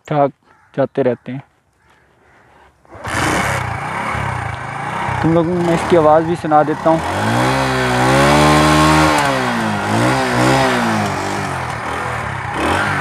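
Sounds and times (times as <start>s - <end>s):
motorcycle engine revving: 2.8s - 13.0s.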